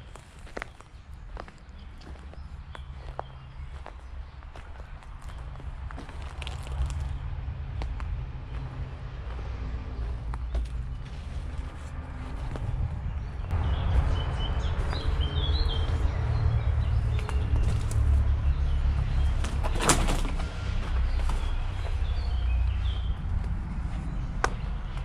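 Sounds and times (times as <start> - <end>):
small birds chirping: 0.0 - 20.2, 20.8 - 25.0
steady low rumble: 1.0 - 25.0.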